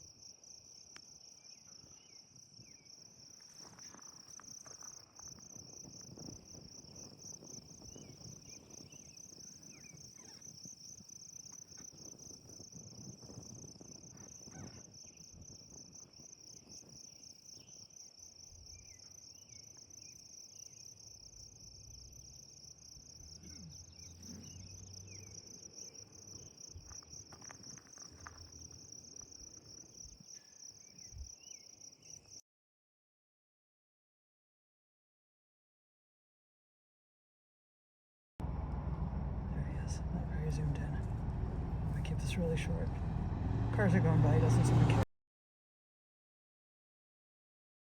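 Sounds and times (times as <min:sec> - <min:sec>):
insects trilling: 0:00.0 - 0:32.4.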